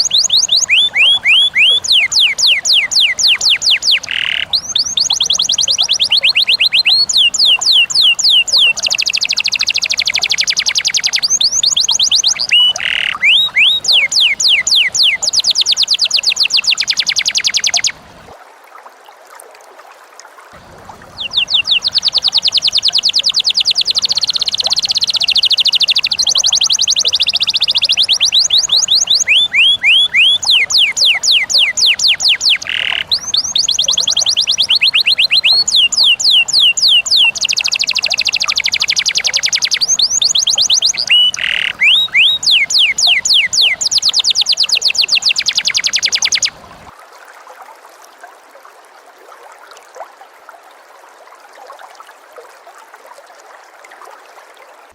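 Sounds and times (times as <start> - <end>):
bird shrill fast chirps: 0.0 - 18.0, 21.1 - 46.6.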